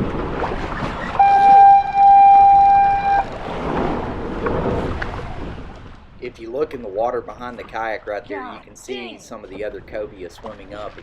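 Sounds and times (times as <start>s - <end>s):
water noise: 0.0s - 11.0s
wind: 0.0s - 11.0s
loud horn sounding: 1.2s - 3.4s.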